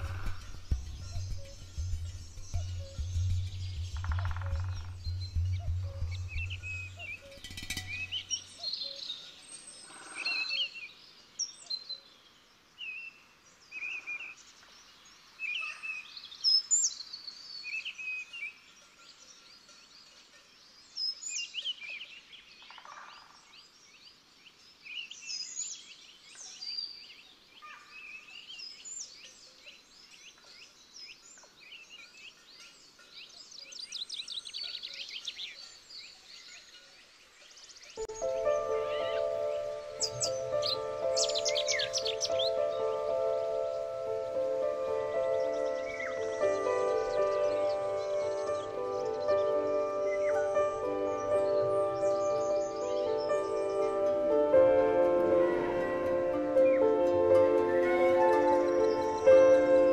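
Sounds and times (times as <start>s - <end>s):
fast repeated bird trills: 0.0s - 9.0s, 38.2s - 43.0s
small songbirds calling: 0.0s - 59.9s.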